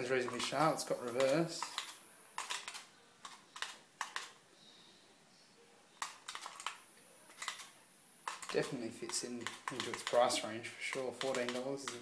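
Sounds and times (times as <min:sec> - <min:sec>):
light clicks and taps: 0:08.3 - 0:12.0.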